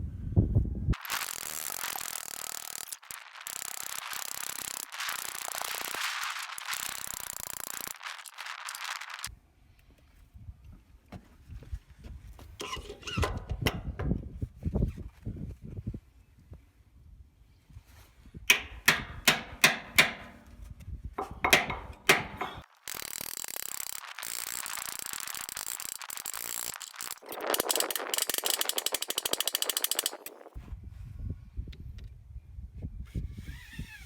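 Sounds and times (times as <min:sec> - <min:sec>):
ratcheting clatter: 0:01.0 - 0:09.3, 0:21.2 - 0:30.6
steady hiss: 0:01.0 - 0:09.3.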